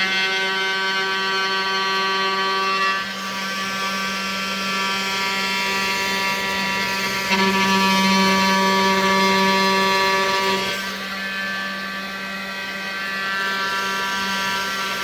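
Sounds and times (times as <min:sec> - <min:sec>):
router motors whining: 0:00.0 - 0:15.0.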